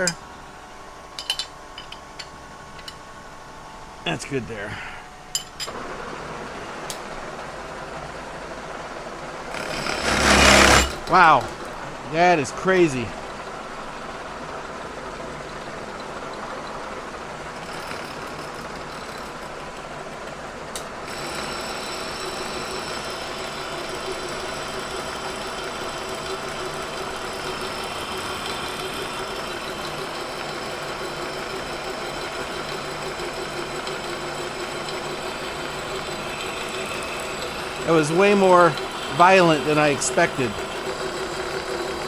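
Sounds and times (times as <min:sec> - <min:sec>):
milling machine cutting cast iron: 0:00.0 - 0:03.4, 0:09.2 - 0:13.2, 0:16.0 - 0:42.0.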